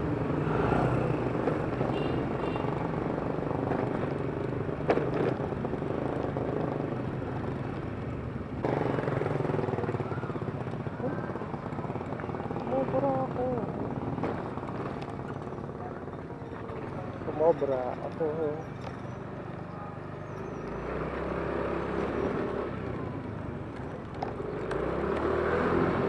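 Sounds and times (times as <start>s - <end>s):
scooter engine running: 8.6s - 17.2s.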